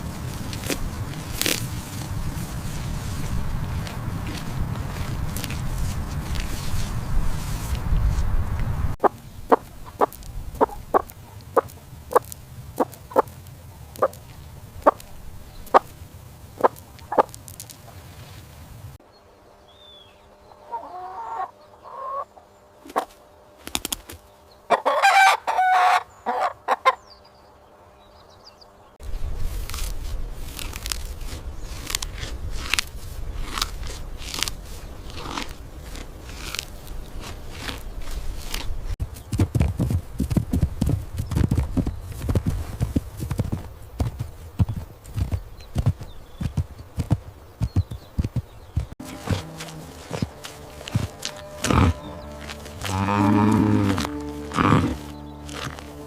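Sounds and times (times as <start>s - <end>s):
steady low rumble: 0.0s - 17.9s, 29.0s - 56.0s
chickens clucking: 9.0s - 13.3s, 13.9s - 14.2s, 16.6s - 17.4s, 20.6s - 24.1s, 24.7s - 27.0s
rooster crowing: 24.7s - 26.6s.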